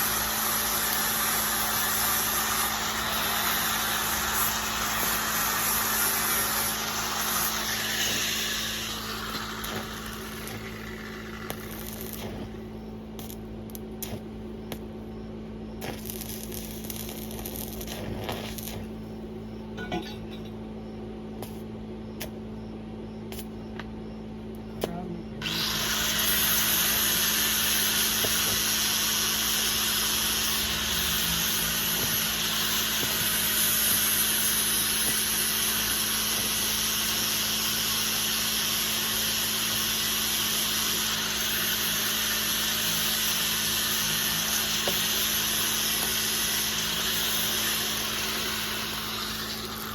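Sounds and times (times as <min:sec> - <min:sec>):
arc welding hiss: 0:00.0 - 0:14.9, 0:15.8 - 0:19.1, 0:21.4 - 0:22.4, 0:23.3 - 0:23.6, 0:24.8 - 0:49.9
constant low hum: 0:00.0 - 0:38.3.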